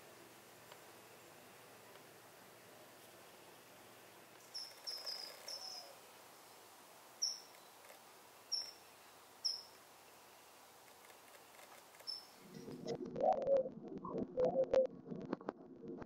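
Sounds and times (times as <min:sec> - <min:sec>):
faint outdoor hiss: 0:00.0 - 0:13.2
songbird chirping: 0:04.2 - 0:12.8.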